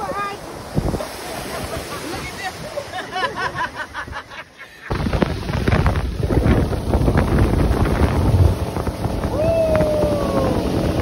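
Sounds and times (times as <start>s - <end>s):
wind buffeting microphone: 0.6s - 2.6s, 4.9s - 11.0s.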